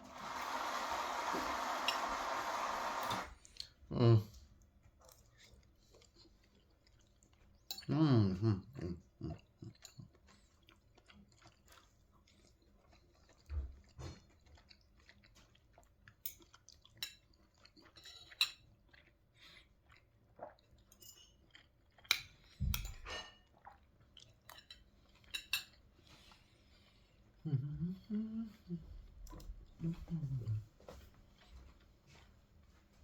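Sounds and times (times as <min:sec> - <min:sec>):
people chewing: 0:04.4 - 0:22.7, 0:23.5 - 0:33.0
cutlery clinking on dishes: 0:22.1 - 0:23.5, 0:24.5 - 0:25.8.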